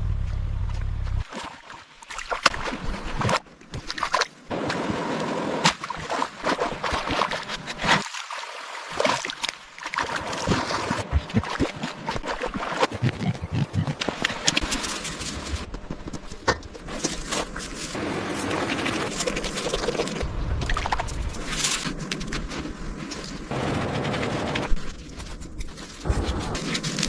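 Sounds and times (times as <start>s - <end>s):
water splashing and running: 1.1s - 15.9s, 16.8s - 27.0s.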